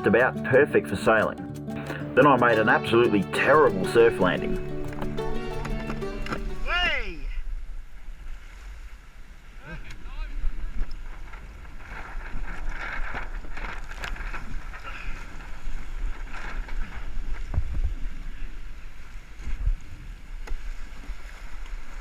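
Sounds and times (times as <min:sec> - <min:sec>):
water rushing and splashing: 0:07.8 - 0:22.0.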